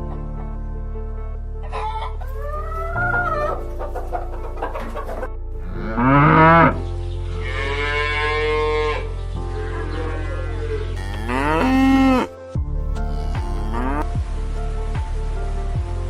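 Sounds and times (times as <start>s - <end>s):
cattle mooing: 5.6s - 6.8s, 11.0s - 12.3s, 12.9s - 14.0s.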